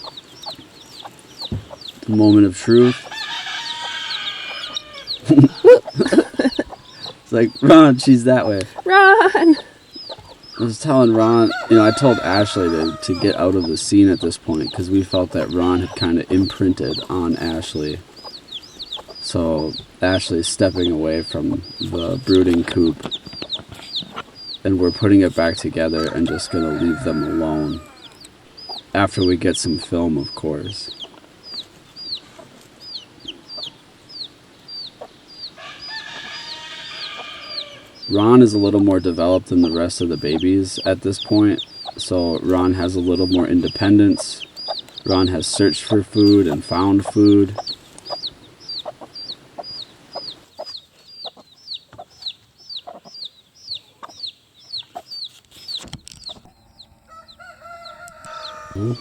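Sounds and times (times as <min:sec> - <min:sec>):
baby chicks peeping: 0:00.0 - 0:59.0
hen clucking: 0:00.0 - 0:59.0.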